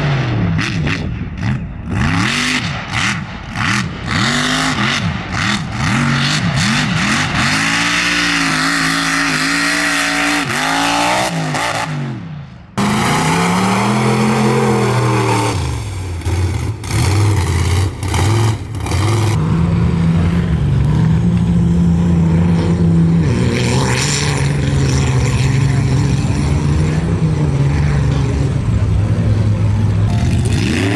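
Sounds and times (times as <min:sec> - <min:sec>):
truck engines revving hard: 0:00.0 - 0:30.9.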